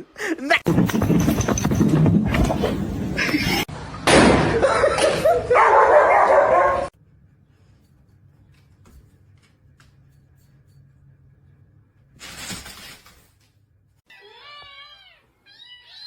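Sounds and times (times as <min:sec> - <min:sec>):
cat meowing: 0:14.1 - 0:16.0.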